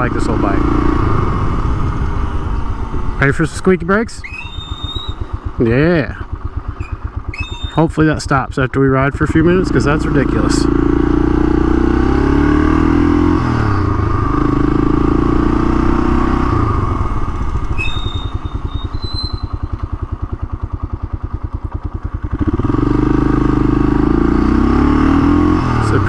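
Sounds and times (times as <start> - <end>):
motorcycle engine revving: 0.0 - 26.0
brake squeal: 4.1 - 5.6, 6.6 - 8.3, 15.9 - 20.5.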